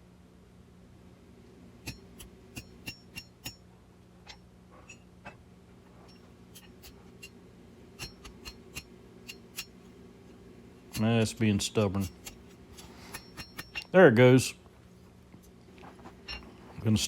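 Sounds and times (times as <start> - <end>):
hammer striking hot steel: 1.8 - 3.6, 8.0 - 9.9, 10.8 - 14.0.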